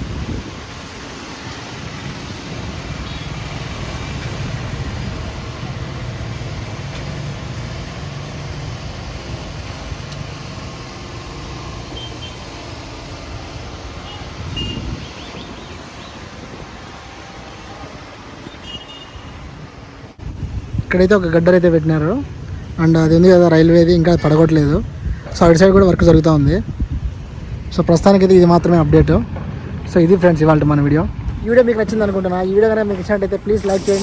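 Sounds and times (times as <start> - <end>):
road traffic rumble: 0.0 - 34.0.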